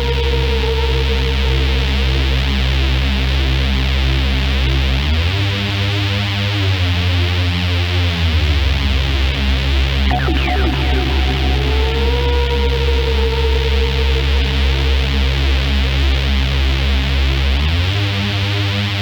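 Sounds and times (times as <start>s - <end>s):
electronic dance music: 10.1s - 15.2s.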